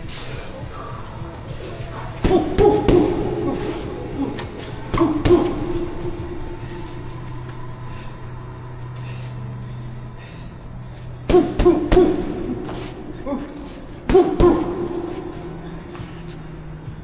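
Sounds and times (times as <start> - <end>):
steady low hum: 0.0 - 17.0
punches landing: 1.5 - 7.3, 11.2 - 16.6.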